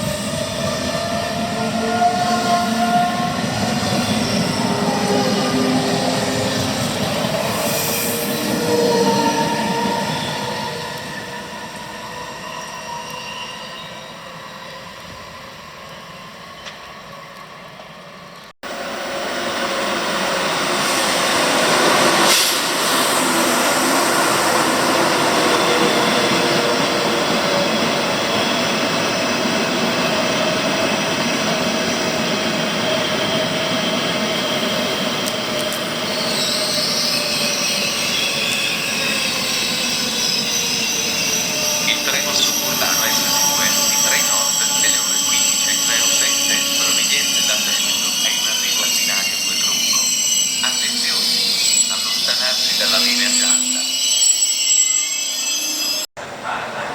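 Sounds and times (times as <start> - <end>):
train rumbling on rails: 0.0 - 56.9
wheel squeal: 7.4 - 15.3, 36.0 - 56.1.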